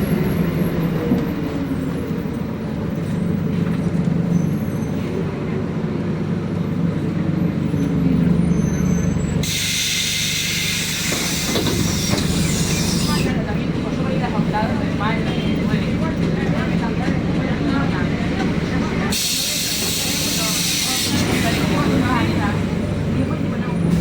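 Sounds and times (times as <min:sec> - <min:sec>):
bus diesel engine droning: 0:00.0 - 0:24.0
compressed air hiss: 0:09.4 - 0:13.2.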